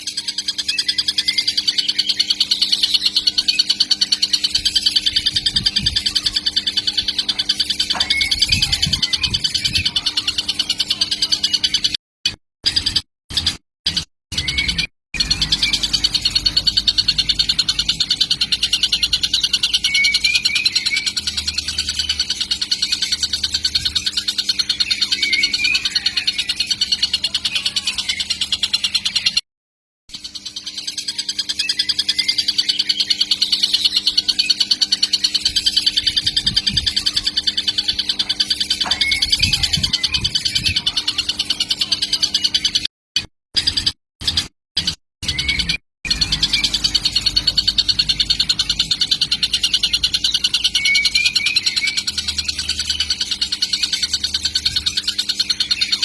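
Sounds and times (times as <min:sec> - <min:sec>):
kingfisher buzzy trill: 0:14.4 - 0:29.0, 0:32.1 - 0:42.2, 0:45.2 - 0:56.0.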